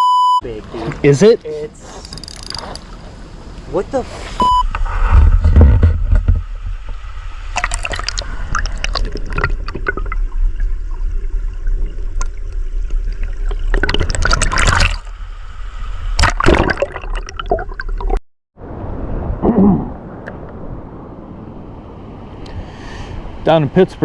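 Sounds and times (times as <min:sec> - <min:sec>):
river water splashing and gurgling: 0:00.5 - 0:05.0, 0:05.8 - 0:19.4
wind on microphone: 0:01.8 - 0:16.6.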